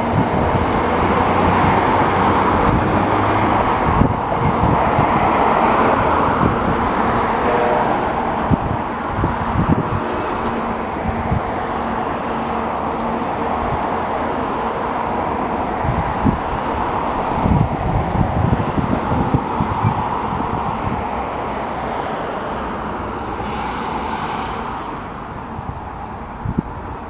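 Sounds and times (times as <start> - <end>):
wind thumps on microphone: 0.0 - 11.6, 15.8 - 21.1
commuter train pulling away: 0.0 - 27.0.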